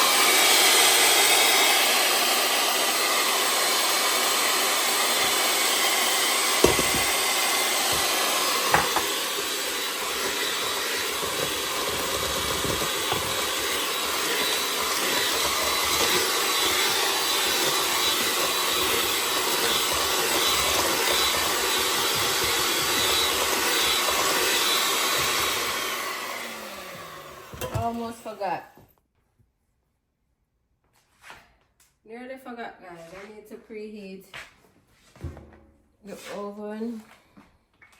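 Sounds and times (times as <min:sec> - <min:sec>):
electric kitchen mixer running: 0:00.0 - 0:28.6.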